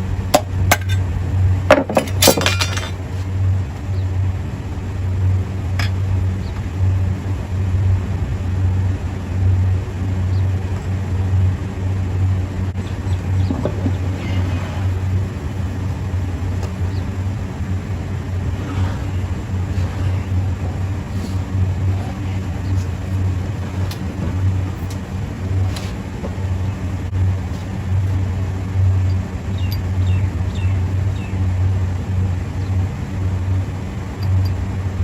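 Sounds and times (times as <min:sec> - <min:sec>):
steady low hum: 0:00.0 - 0:35.0
metal parts clinking: 0:01.9 - 0:03.0.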